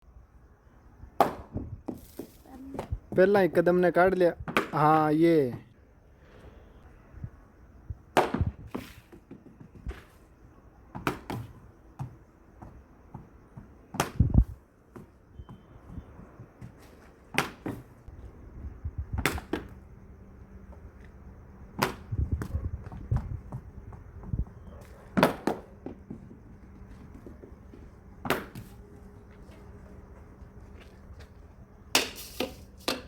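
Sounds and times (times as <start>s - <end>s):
cricket bat hitting ball: 1.2s - 2.9s, 4.4s - 4.9s, 8.1s - 10.0s, 10.9s - 12.2s, 13.9s - 14.3s, 17.3s - 17.9s, 19.2s - 19.8s, 21.8s - 22.2s, 25.1s - 26.1s, 28.2s - 28.7s.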